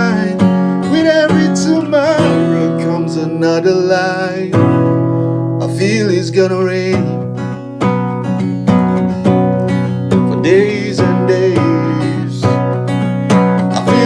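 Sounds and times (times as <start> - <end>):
person singing: 0.0 - 4.9, 5.6 - 7.4, 9.3 - 12.9, 13.6 - 14.0
acoustic guitar strumming: 0.0 - 14.0.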